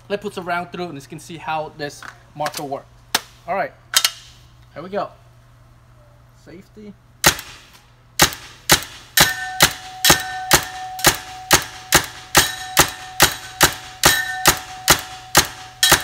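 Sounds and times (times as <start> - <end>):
paintball gun firing: 7.2 - 16.0
paintballs ringing on metal pole: 9.2 - 16.0.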